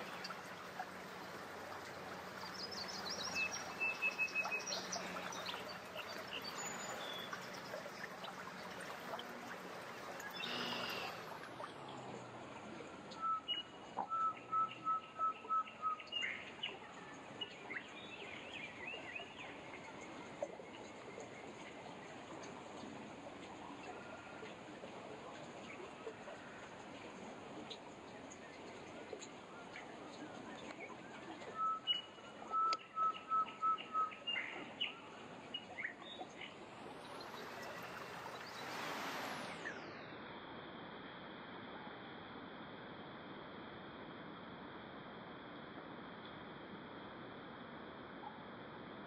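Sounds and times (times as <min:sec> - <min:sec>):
outdoor background hiss: 0:00.0 - 0:49.0
bird twittering chirps: 0:02.3 - 0:08.4, 0:10.2 - 0:11.4, 0:13.1 - 0:16.8, 0:31.5 - 0:36.5
songbird whistled notes: 0:13.1 - 0:16.8, 0:31.5 - 0:35.0.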